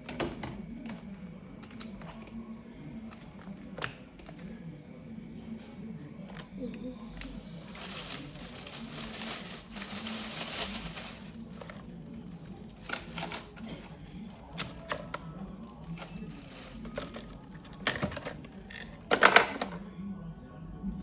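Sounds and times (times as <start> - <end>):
objects clicking and knocking: 7.7 - 19.8.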